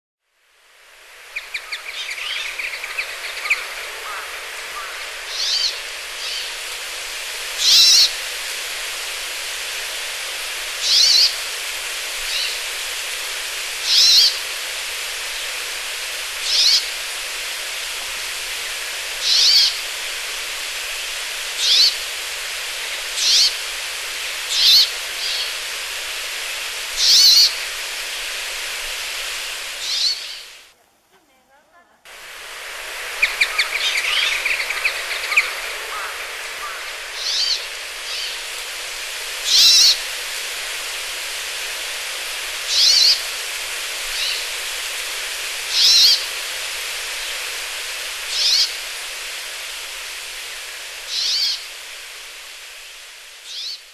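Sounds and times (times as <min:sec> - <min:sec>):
steady hiss: 0:00.2 - 0:53.9
bird twittering: 0:01.3 - 0:06.6, 0:07.6 - 0:08.2, 0:10.8 - 0:11.4, 0:13.9 - 0:14.4, 0:16.5 - 0:16.9, 0:19.2 - 0:19.8, 0:21.6 - 0:22.0, 0:22.9 - 0:23.6, 0:24.5 - 0:25.6, 0:27.0 - 0:27.6, 0:29.8 - 0:30.6, 0:33.1 - 0:38.4, 0:39.5 - 0:40.0, 0:42.7 - 0:43.2, 0:45.7 - 0:46.3, 0:48.3 - 0:48.7, 0:51.1 - 0:51.6, 0:53.5 - 0:53.8.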